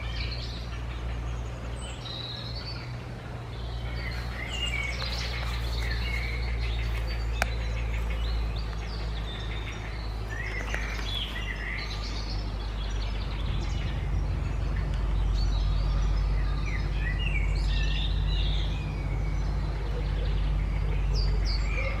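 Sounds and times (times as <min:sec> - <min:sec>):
bird calls and chirps: 0:00.0 - 0:22.0
low rumble: 0:00.0 - 0:22.0.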